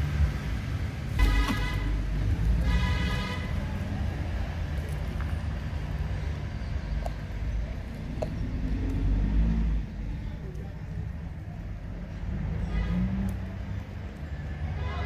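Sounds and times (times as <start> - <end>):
road traffic rumble: 0.0 - 15.0
horn toot: 1.1 - 3.7.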